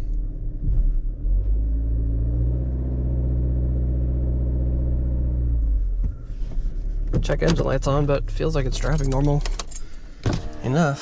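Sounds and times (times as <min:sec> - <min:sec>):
vehicle engine running: 0:03.0 - 0:10.8.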